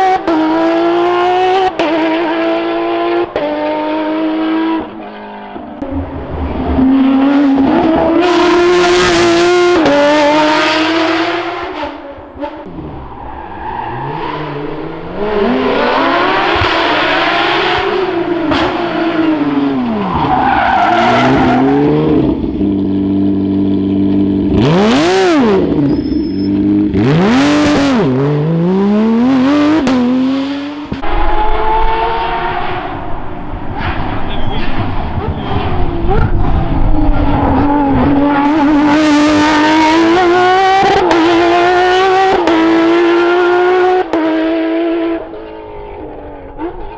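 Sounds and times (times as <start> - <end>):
rally car engines revving: 0.0 - 46.9
cars passing by: 12.6 - 46.9.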